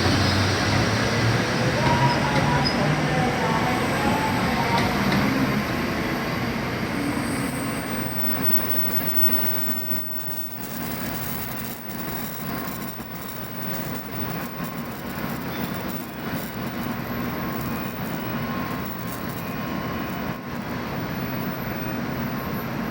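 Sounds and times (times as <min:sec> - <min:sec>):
train rumbling and rushing: 0:00.0 - 0:22.9
faint wheel squeal: 0:07.0 - 0:16.4.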